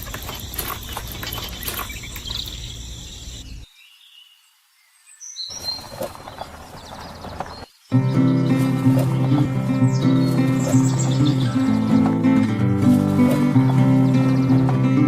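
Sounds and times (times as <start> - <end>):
crackling clicks: 0.0 - 2.6
birds chirping: 0.0 - 15.0.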